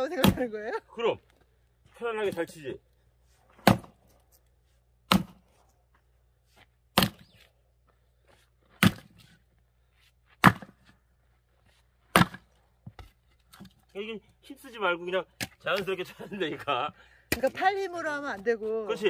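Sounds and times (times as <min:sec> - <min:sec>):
axe chopping wood: 0:00.1 - 0:00.6, 0:03.5 - 0:04.1, 0:05.0 - 0:05.5, 0:06.9 - 0:07.4, 0:08.7 - 0:09.4, 0:10.3 - 0:11.0, 0:12.0 - 0:13.7, 0:15.4 - 0:15.9, 0:17.2 - 0:17.6.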